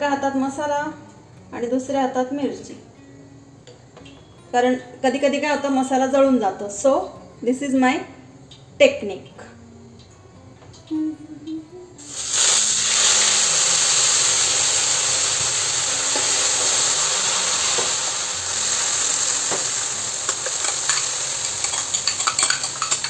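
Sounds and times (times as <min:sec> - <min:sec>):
paste sizzling in hot oil: 0:12.0 - 0:23.0
steel ladle scraping a pan: 0:20.2 - 0:23.0.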